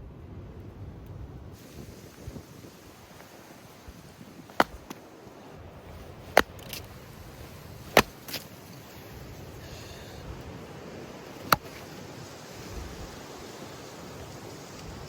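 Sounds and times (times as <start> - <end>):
wind hiss: 0.6 - 15.0
axe strikes splitting firewood: 4.4 - 5.1, 6.0 - 8.6, 11.4 - 11.9.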